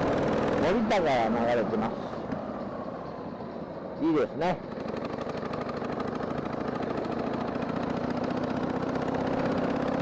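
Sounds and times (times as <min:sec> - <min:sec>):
wind and road noise: 0:00.0 - 0:10.0
motorcycle engine running: 0:04.6 - 0:10.0.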